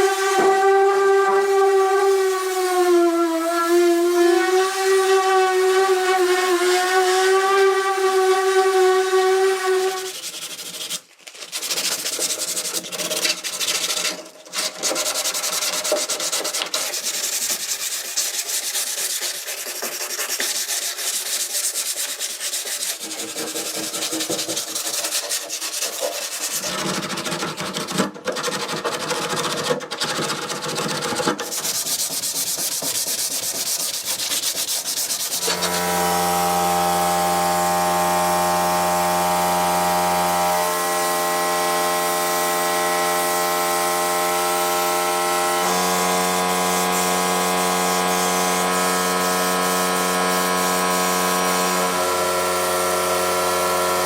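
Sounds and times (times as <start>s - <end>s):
abrasive sanding: 0.0s - 27.3s, 31.4s - 54.0s
steady pitched whine: 35.4s - 54.0s.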